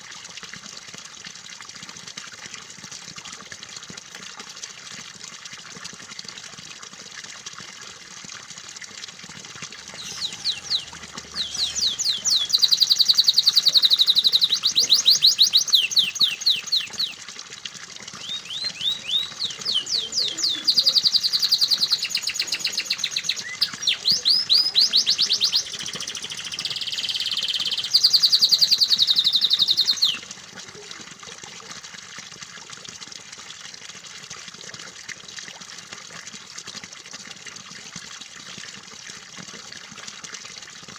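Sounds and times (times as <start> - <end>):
flowing water: 0.0 - 40.9
canary singing trills: 9.9 - 17.2, 18.2 - 30.3.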